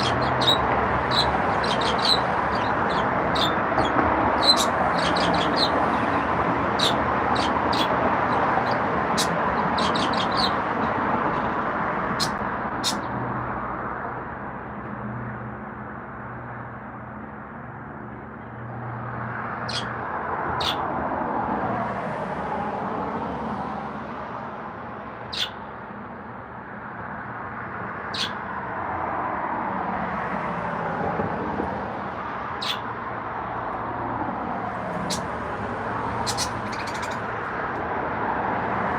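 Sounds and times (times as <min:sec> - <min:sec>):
birds chirping: 0:00.0 - 0:13.2, 0:19.6 - 0:20.0, 0:20.6 - 0:20.8, 0:25.3 - 0:25.7, 0:28.1 - 0:28.4, 0:32.6 - 0:32.9, 0:34.9 - 0:37.6.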